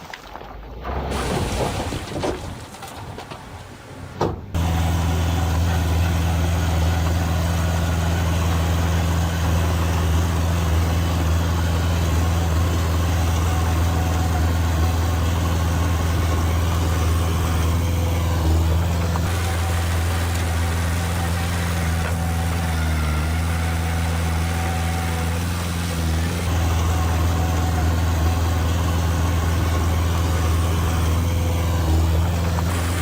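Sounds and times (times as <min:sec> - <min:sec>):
heavy diesel engine droning: 0:03.9 - 0:33.0.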